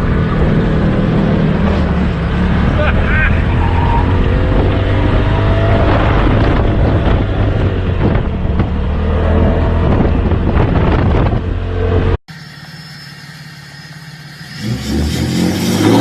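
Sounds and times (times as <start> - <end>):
wind buffeting microphone: 3.4 - 12.2.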